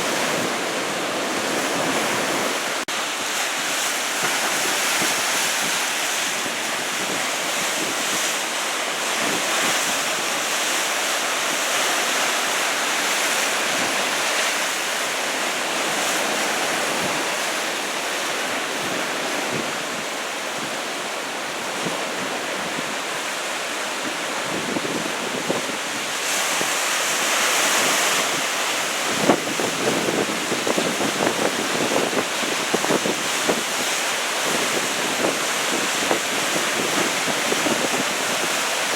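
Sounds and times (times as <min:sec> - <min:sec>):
wind buffeting microphone: 0:00.0 - 0:02.8, 0:15.7 - 0:23.2, 0:23.9 - 0:26.8, 0:27.6 - 0:38.9
ocean surf breaking: 0:00.0 - 0:38.9.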